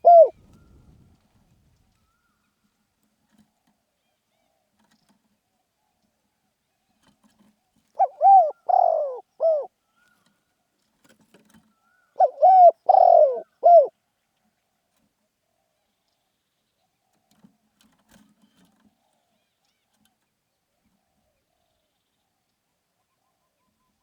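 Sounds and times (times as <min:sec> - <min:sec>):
dove cooing: 0:00.0 - 0:01.1, 0:08.0 - 0:09.7, 0:12.2 - 0:13.9.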